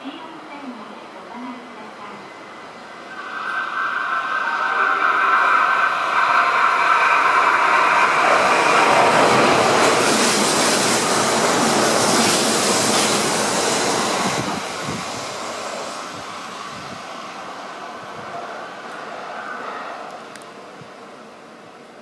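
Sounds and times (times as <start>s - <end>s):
electric train passing: 1.8s - 22.0s.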